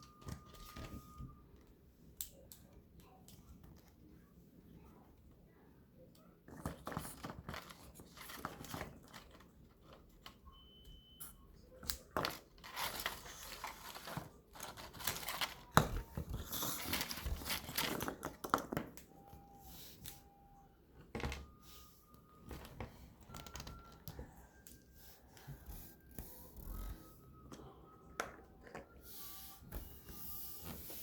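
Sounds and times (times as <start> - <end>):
plastic packaging crinkling: 12.2 - 18.3.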